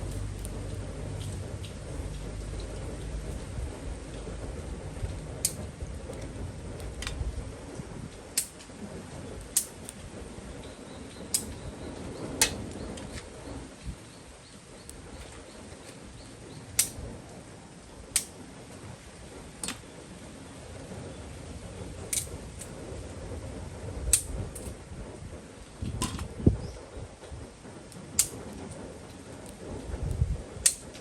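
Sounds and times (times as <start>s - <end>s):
campfire crackling and popping: 0.0s - 31.0s
low steady rush: 0.0s - 31.0s.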